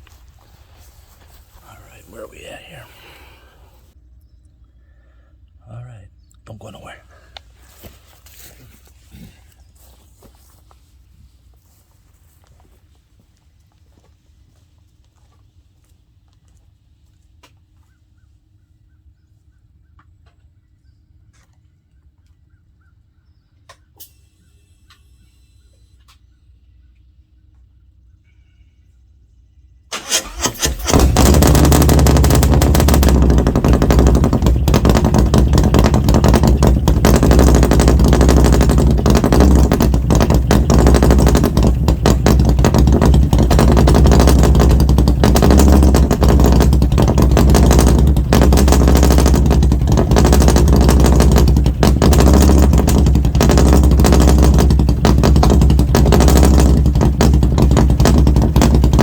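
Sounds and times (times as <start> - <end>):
motorcycle engine running loud: 0.0 - 2.7, 30.0 - 59.0.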